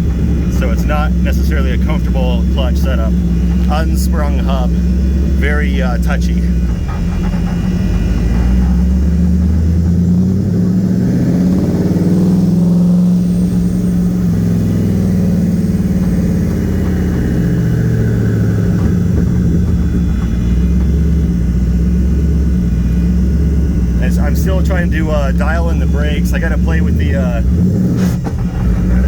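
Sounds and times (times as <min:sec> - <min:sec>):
car engine running at low revs: 0:00.0 - 0:29.0.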